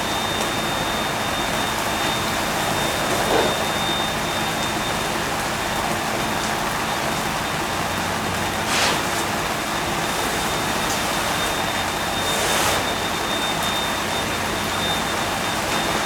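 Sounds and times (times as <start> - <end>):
thin high whine: 0.0 - 5.0, 8.6 - 16.0
fire hose water spray: 0.0 - 5.4, 7.9 - 16.0.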